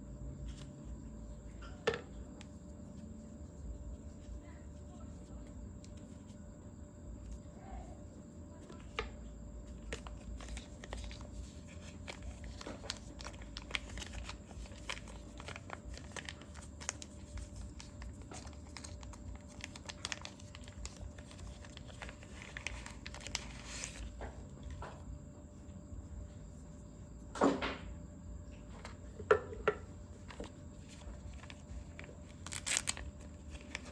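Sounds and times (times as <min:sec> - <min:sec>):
packaging crinkling and tearing: 0:09.8 - 0:24.3, 0:30.3 - 0:33.9.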